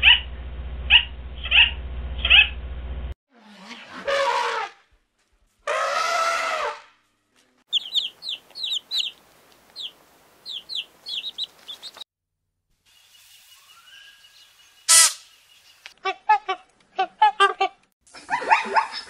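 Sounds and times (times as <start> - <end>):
baby chicks peeping: 7.7 - 12.0.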